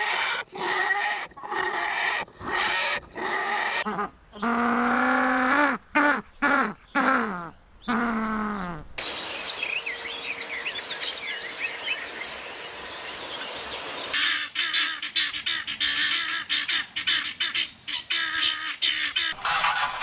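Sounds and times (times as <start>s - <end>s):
small birds chirping: 9.0s - 14.2s
steady hiss: 9.0s - 14.2s
geese honking: 9.0s - 20.0s.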